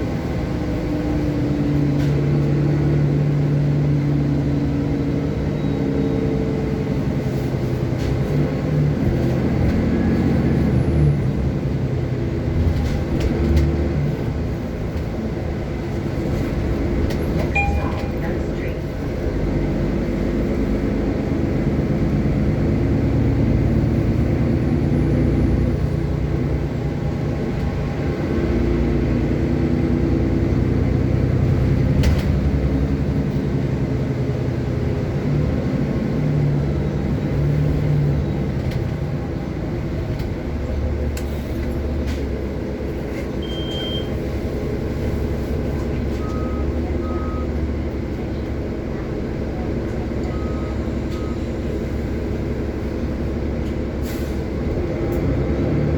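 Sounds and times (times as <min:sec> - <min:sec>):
bus engine drone: 0:00.0 - 0:55.9
road noise: 0:00.0 - 0:55.9
short high beeps: 0:17.5 - 0:18.2, 0:43.4 - 0:44.1.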